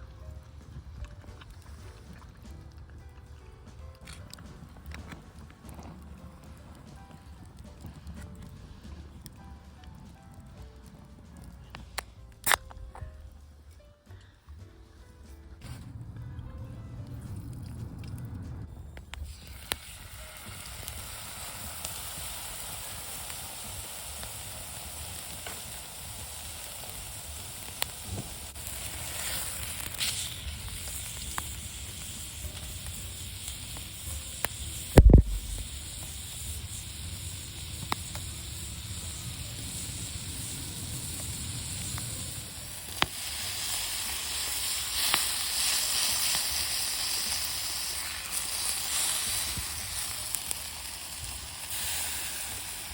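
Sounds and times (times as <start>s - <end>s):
wood fire crackles: 0.0s - 52.9s
meat sizzling on griddle: 19.2s - 52.9s.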